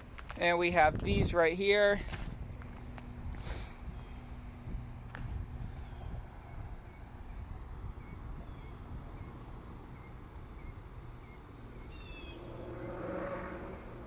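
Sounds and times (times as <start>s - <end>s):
bird chirping: 4.6s - 14.0s
bird trill: 4.6s - 14.0s
low rumble: 11.9s - 14.0s.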